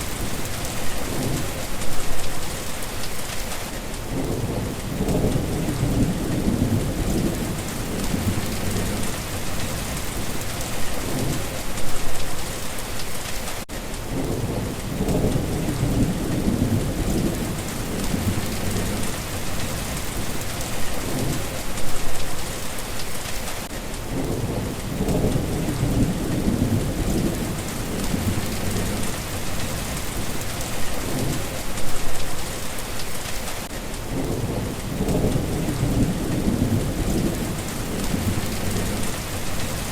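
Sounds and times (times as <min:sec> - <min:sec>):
heavy rain: 0:00.0 - 0:39.9
rolling thunder: 0:04.1 - 0:12.2, 0:14.1 - 0:22.2, 0:24.1 - 0:32.3, 0:34.1 - 0:39.9.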